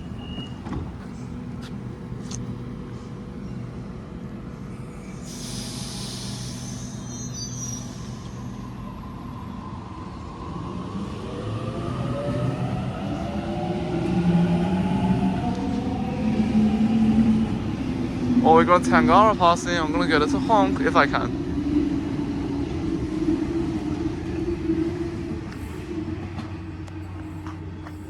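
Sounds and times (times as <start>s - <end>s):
train hiss: 4.6s - 8.8s.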